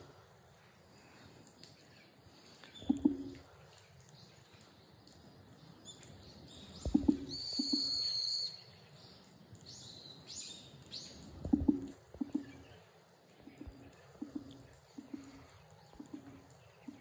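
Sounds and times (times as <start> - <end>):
birds calling: 2.6 - 3.4, 6.7 - 8.3, 11.0 - 17.0.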